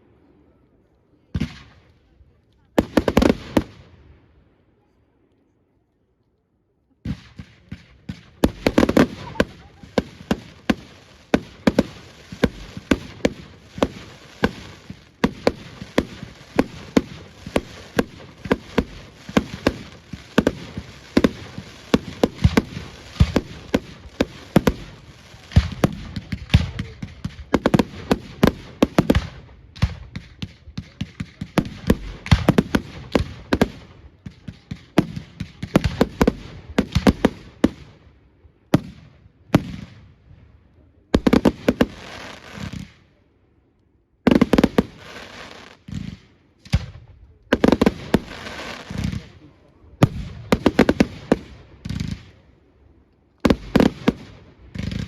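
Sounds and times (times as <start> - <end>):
fireworks bangs and crackling: 1.3 - 4.3, 7.0 - 43.2, 44.2 - 55.0.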